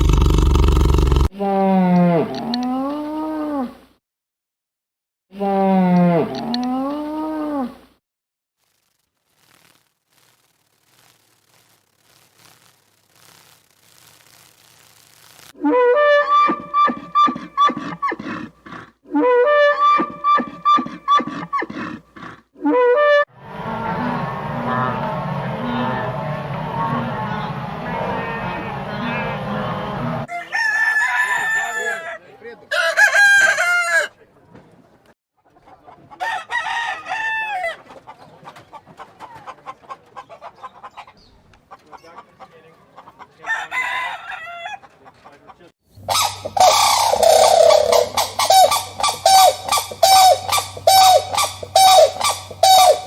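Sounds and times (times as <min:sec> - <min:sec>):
animal calling: 0:15.9 - 0:22.4, 0:46.0 - 0:53.0
rooster crowing: 0:30.2 - 0:34.1, 0:36.2 - 0:37.8, 0:43.4 - 0:44.8, 0:46.1 - 0:53.0
chicken clucking: 0:35.4 - 0:36.2, 0:37.8 - 0:43.5, 0:44.6 - 0:53.0.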